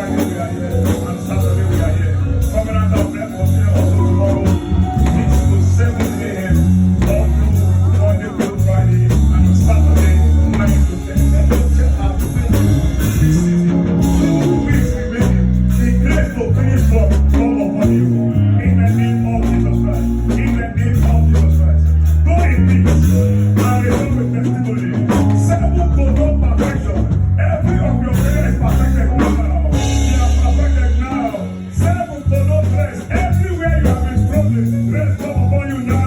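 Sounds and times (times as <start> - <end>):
people singing: 0.0 - 19.4
bass guitar: 0.0 - 36.0
live band music: 0.0 - 36.0.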